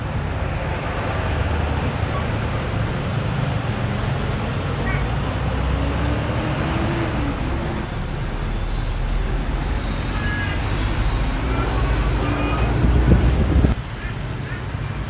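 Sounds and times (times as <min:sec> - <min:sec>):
diesel trucks passing: 0:00.0 - 0:15.0.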